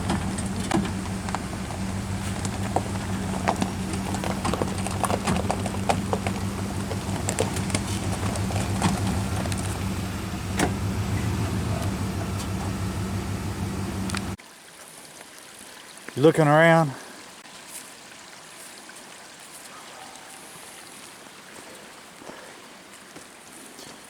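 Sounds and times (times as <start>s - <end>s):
car engine idling: 0.0s - 14.4s
light clicks: 10.6s - 14.4s.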